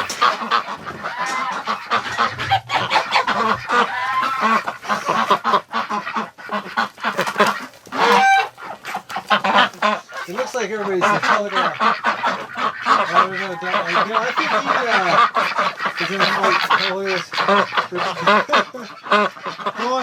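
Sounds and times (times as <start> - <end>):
ducks and geese calling: 0.0 - 20.0.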